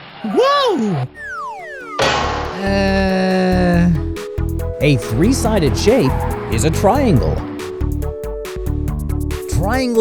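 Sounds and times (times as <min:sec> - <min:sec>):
cartoon falling whistle: 0:00.3 - 0:02.8
held notes of background music: 0:01.1 - 0:10.0
cartoon landing hit: 0:01.9 - 0:03.2.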